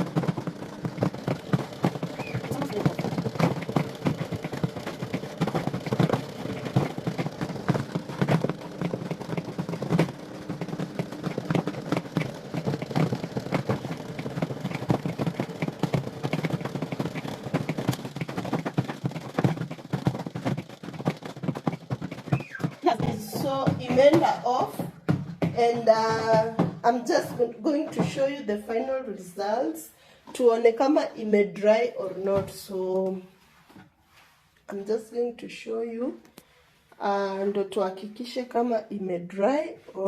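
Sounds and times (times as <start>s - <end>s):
spin dryer motor hum: 0.0s - 28.8s
laundry rattling and clattering: 0.0s - 29.1s.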